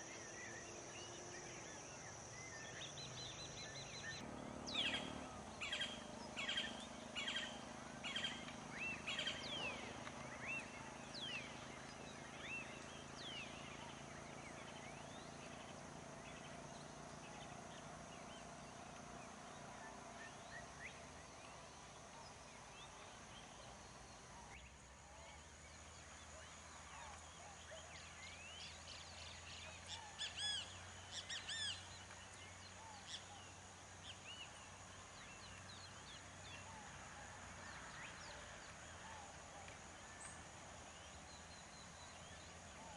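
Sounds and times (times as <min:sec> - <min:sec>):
birds chirping: 0:00.0 - 0:24.5.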